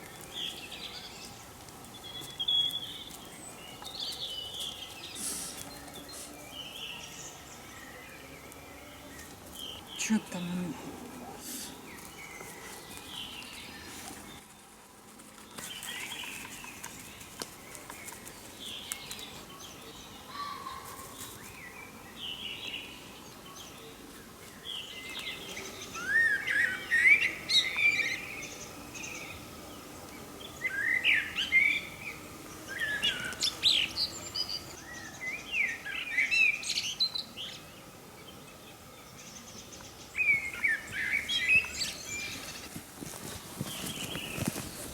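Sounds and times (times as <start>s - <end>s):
bird singing complex phrase: 0.0s - 11.0s, 24.6s - 42.7s
songbirds singing softly: 0.0s - 14.8s, 15.4s - 44.9s.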